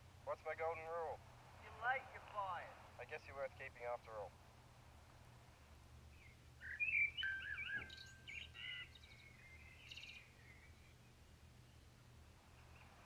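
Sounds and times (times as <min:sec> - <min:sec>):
bird warbling chirps: 0:06.2 - 0:10.9.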